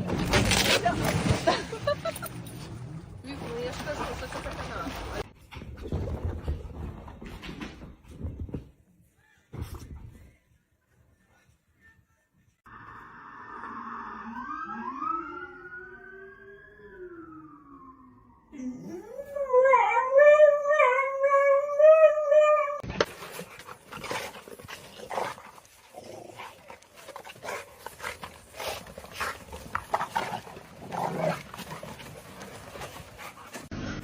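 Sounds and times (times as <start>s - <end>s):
dog howling: 18.5s - 22.8s.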